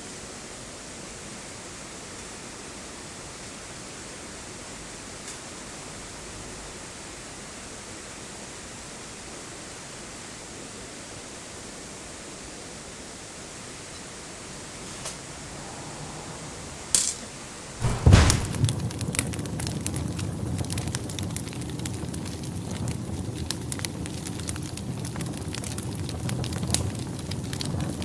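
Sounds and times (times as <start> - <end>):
clattering: 17.8 - 18.8
heavy knocks: 17.8 - 18.9.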